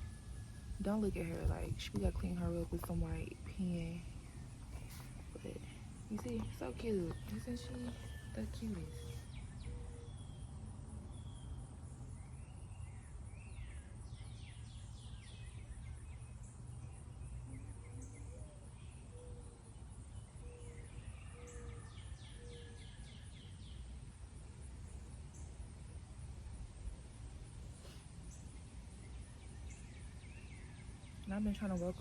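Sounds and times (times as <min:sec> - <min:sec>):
birds whistling and chirping: 0:00.0 - 0:10.5
low outdoor rumble: 0:00.0 - 0:20.4.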